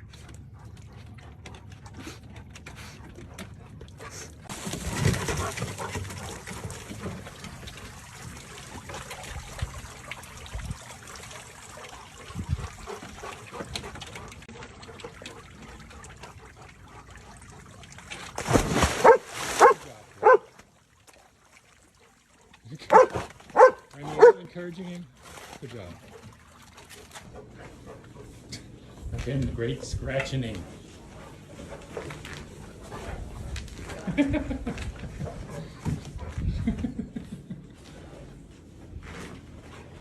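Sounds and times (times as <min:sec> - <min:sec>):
dog barking: 0:19.0 - 0:20.5, 0:22.9 - 0:24.4.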